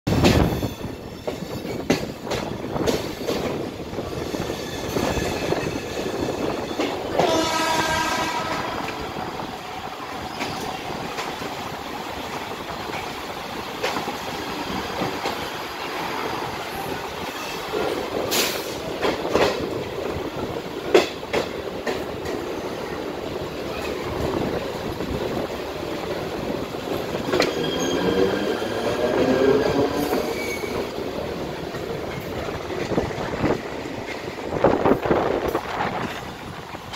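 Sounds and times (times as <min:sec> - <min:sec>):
train rumbling: 0:00.1 - 0:36.9
train horn: 0:07.1 - 0:09.2.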